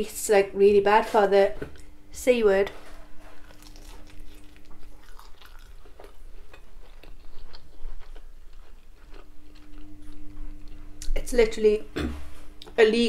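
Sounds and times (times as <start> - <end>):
chewing with crunches: 3.2 - 11.2.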